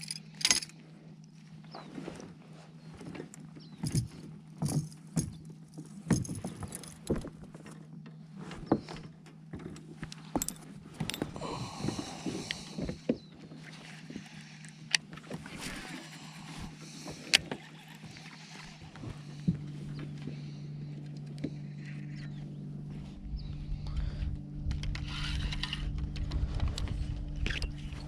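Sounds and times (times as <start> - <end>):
fishing gear knocks and rattles: 0.0 - 0.8, 3.1 - 8.0, 8.6 - 13.3
steady low hum: 0.0 - 28.0.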